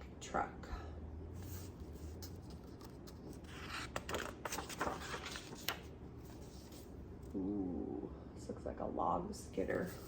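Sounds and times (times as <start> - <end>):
book pages rustling and turning: 1.4 - 7.0.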